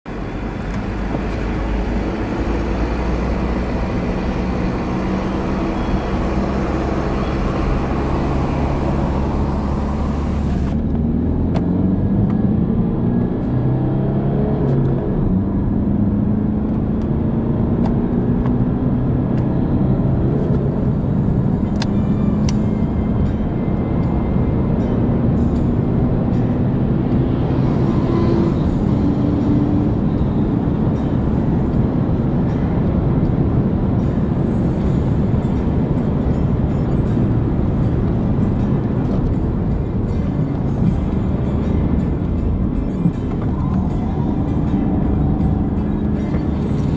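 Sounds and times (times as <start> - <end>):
road and wind noise: 0.0 - 46.9
car engine accelerating: 0.1 - 46.9.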